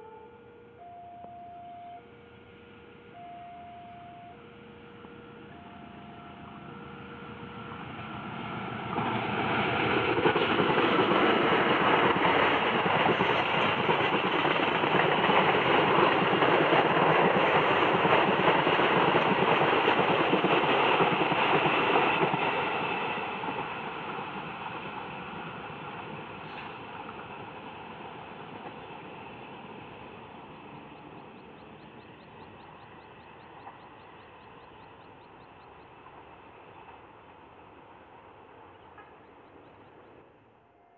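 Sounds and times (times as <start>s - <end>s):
two-pitch beeps: 0.0s - 2.1s, 3.1s - 4.4s, 5.0s - 6.6s
train passing on rails: 0.0s - 40.9s.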